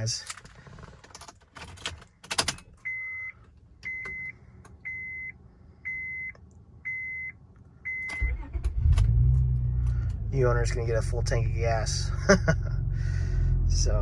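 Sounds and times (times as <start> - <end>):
car engine cranking and starting: 0.0 - 2.9, 7.9 - 12.0
dashboard warning chime beeping: 2.8 - 8.5.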